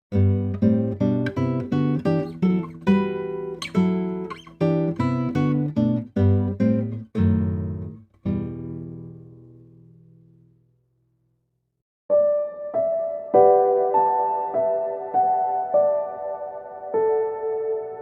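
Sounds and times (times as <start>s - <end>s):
acoustic guitar chords: 0.1s - 10.8s.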